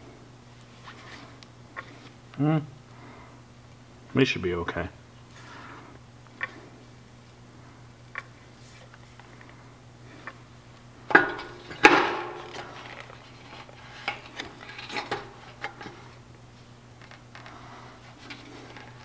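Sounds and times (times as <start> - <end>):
loud metal clanks: 11.1 - 12.5.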